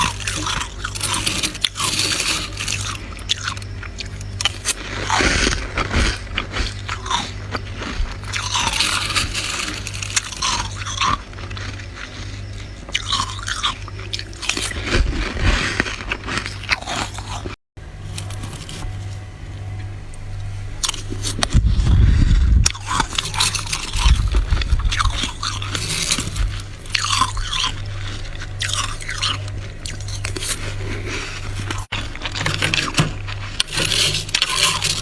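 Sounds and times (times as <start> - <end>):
chewing crunchy frost: 0.0 - 35.0
steady low hum: 0.0 - 35.0.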